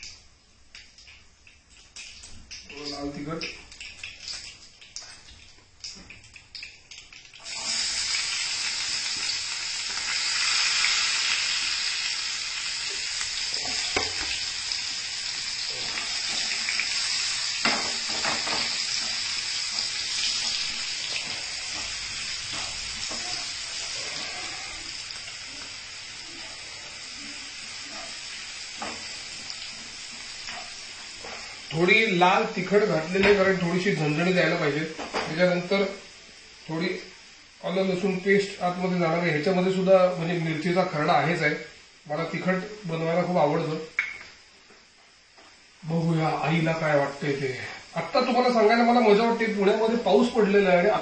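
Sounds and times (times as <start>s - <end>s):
food sizzling in hot oil: 0.8s - 51.0s
pan being stirred: 12.8s - 32.8s.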